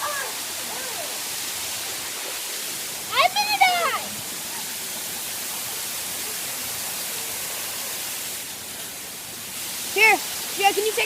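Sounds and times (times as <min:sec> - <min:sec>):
waterfall hissing: 0:00.0 - 0:11.0.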